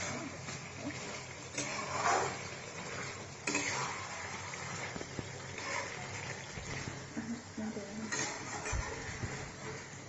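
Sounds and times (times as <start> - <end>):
gravy sizzling in a pan: 0.0 - 10.0.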